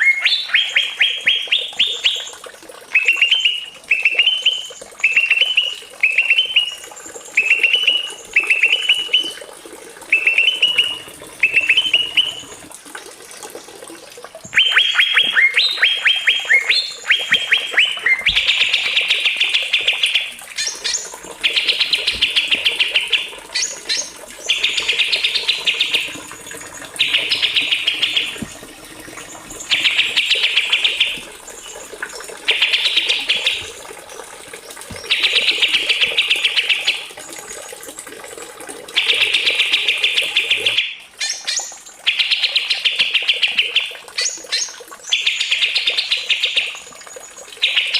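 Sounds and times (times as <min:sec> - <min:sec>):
songbird singing: 0:00.0 - 0:09.4, 0:10.1 - 0:12.6, 0:14.5 - 0:37.1.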